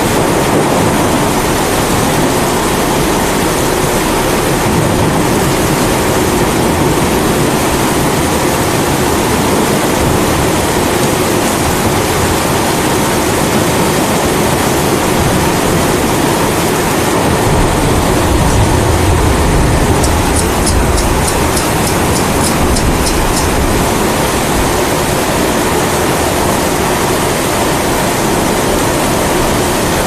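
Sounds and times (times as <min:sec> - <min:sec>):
rain falling: 0:00.0 - 0:30.0
low thunder rumble: 0:00.2 - 0:08.4, 0:17.2 - 0:24.7.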